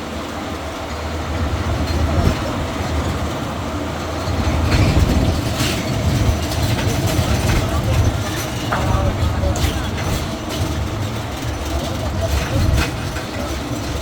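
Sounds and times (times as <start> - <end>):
engine and wheels rumbling: 0.0 - 14.0
knocks and rattles: 4.2 - 14.0.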